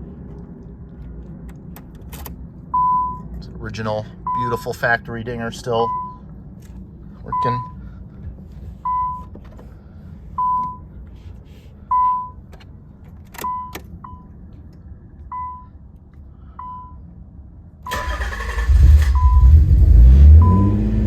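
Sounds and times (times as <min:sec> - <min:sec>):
car engine rumbling: 0:00.0 - 0:21.0
car warning chime: 0:04.3 - 0:04.8, 0:05.8 - 0:06.2, 0:07.3 - 0:07.8, 0:10.4 - 0:10.9, 0:20.4 - 0:20.8.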